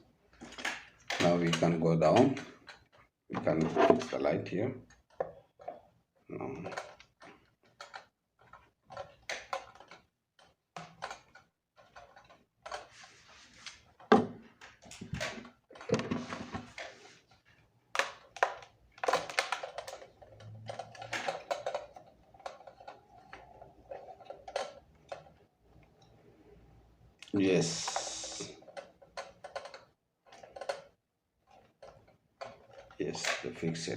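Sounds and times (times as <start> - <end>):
clicks and knocks of fitting: 6.6 - 12.9, 28.0 - 33.9.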